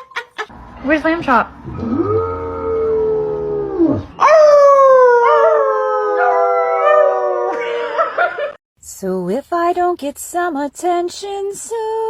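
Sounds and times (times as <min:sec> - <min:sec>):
dog howling: 0:01.7 - 0:08.1.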